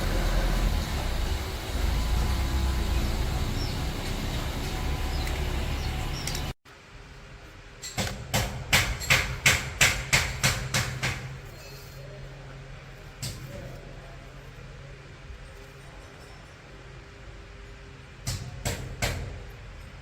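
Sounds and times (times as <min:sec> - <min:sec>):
mechanical rumble: 0:00.0 - 0:06.6
sharp knocks on metal: 0:07.9 - 0:11.4, 0:18.2 - 0:19.4.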